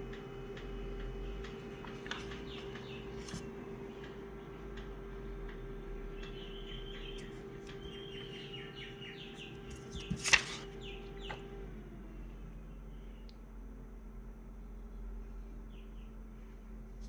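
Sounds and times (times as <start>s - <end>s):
steady low hum: 0.0s - 17.0s
small birds chirping: 1.5s - 4.1s, 6.1s - 11.5s, 15.3s - 16.6s.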